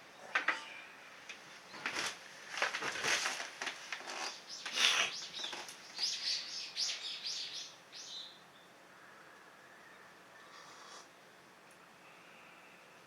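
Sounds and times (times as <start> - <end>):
rustling and crackling: 1.3 - 5.8
bird chirping: 4.2 - 8.7.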